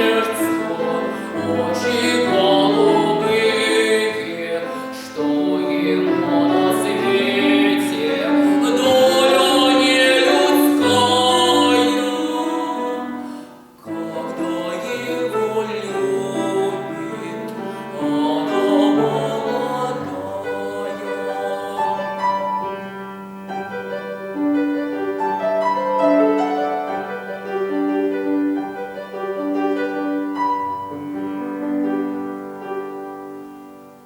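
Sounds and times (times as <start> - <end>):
boy singing: 0.0 - 13.2, 13.8 - 22.3
piano accompaniment: 0.0 - 34.0.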